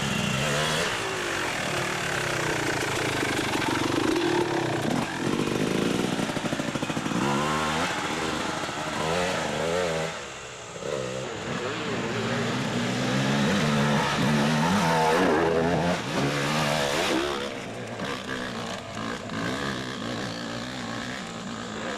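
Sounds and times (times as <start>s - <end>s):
dirt bike engine revving: 0.0s - 21.9s.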